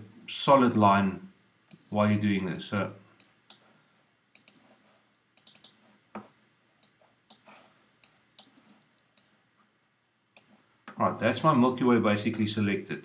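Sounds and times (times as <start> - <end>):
computer mouse clicking: 4.3 - 4.7, 5.4 - 9.3, 10.3 - 10.6.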